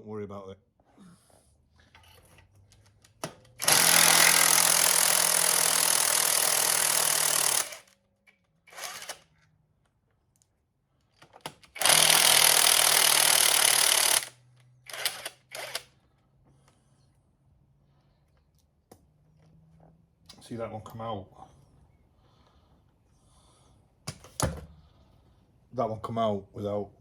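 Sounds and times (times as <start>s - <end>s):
cordless impact wrench hammering: 3.2s - 7.9s, 11.5s - 15.8s.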